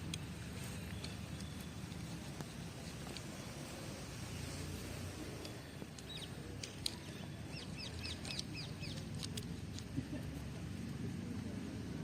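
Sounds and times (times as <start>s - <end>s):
low outdoor rumble: 0.0s - 12.0s
bird chirping: 0.6s - 2.7s, 3.4s - 9.8s.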